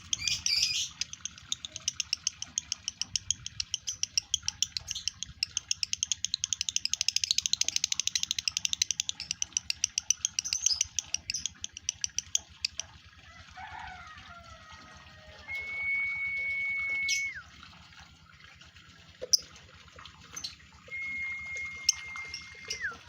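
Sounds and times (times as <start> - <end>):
lovebird chattering high chirps: 0.0 - 12.8.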